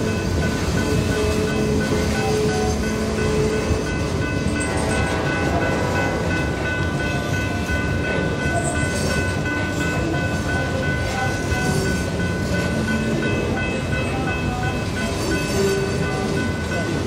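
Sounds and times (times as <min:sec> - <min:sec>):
freight train rumbling over bridge: 0:00.0 - 0:17.0.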